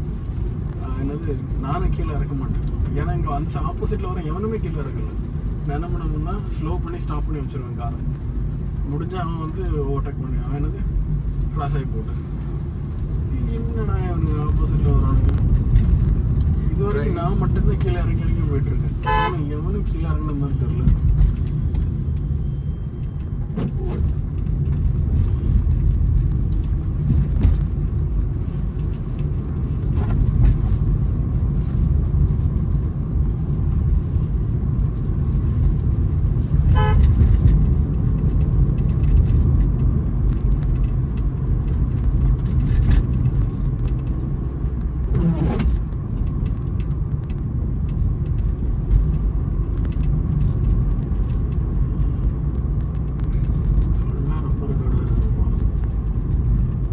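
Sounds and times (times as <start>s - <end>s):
car cabin rumble: 0.0s - 56.9s
car horn toot: 19.0s - 19.4s, 36.7s - 37.2s.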